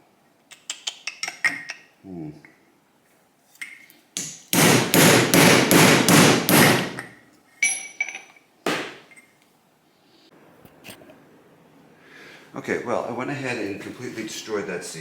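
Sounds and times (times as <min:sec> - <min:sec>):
hammer blows on metal: 0:04.2 - 0:07.0.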